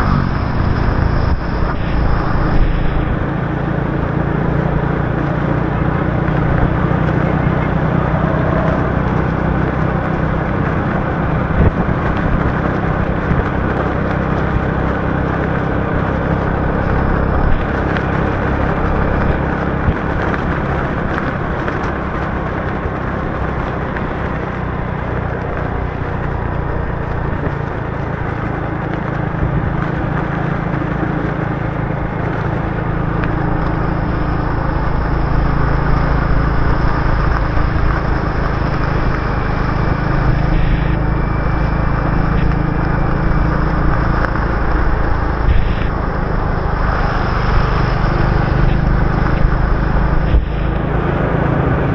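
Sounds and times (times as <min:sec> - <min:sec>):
wind hiss: 0:00.0 - 0:13.8
motorbike engine hum: 0:00.0 - 0:51.9
rain: 0:00.0 - 0:51.9
tyres on wet road: 0:00.0 - 0:51.9.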